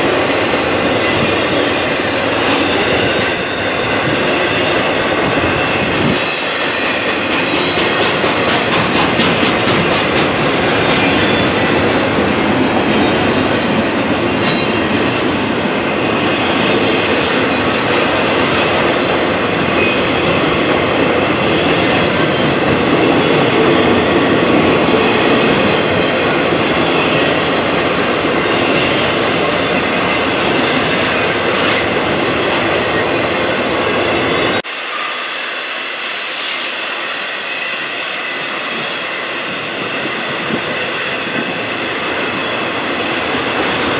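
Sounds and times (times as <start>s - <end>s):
freight train rumbling on rails: 0.0s - 43.9s
train wheel squeal: 1.1s - 13.4s, 28.4s - 33.0s, 34.2s - 43.6s.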